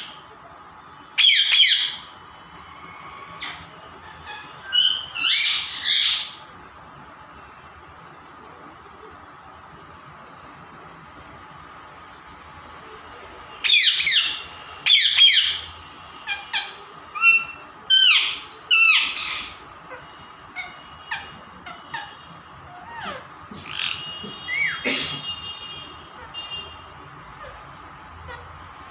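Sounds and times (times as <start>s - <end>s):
parrot squawking: 1.2s - 2.1s, 3.3s - 6.5s, 13.6s - 25.2s, 27.3s - 28.9s.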